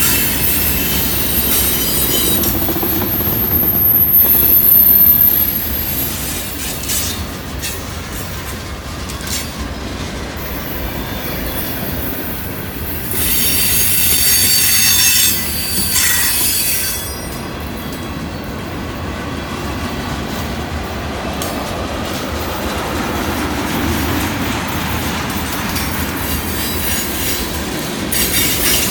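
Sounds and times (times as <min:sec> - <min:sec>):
high-pitched wheel squeal: 0:00.0 - 0:07.2, 0:13.0 - 0:17.5
steel wheels rumbling on rail: 0:00.0 - 0:28.9.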